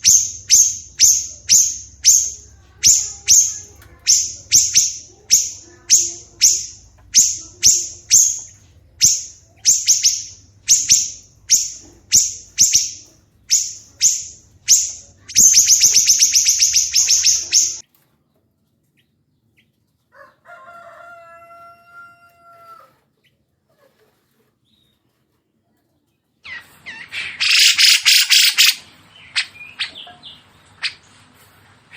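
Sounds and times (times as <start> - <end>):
songbird calling and trilling: 0.0 - 17.8, 26.5 - 31.0.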